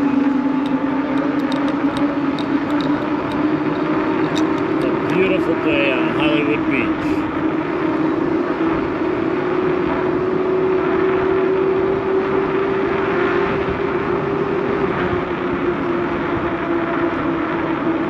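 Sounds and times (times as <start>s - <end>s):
rushing noise: 0.0s - 11.8s
motor-like hum: 0.0s - 18.0s.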